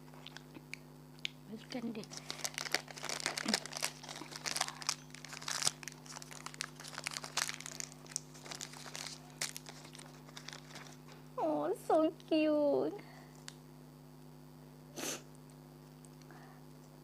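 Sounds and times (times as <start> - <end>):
candy wrapper crinkling: 2.0 - 11.0.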